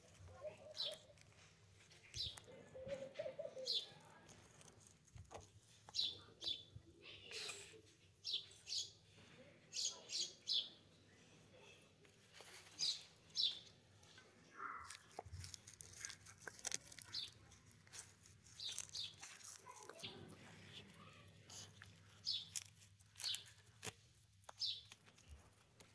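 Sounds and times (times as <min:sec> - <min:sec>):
tortoise biting leaves: 0:00.0 - 0:02.5, 0:03.6 - 0:06.6, 0:14.6 - 0:25.9
small birds chirping: 0:00.0 - 0:11.7, 0:12.3 - 0:25.4.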